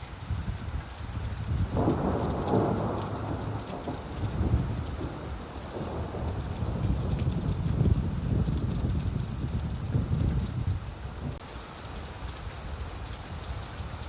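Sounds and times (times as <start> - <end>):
steady rainfall: 0.0 - 14.0
thunder rumble: 1.3 - 11.4.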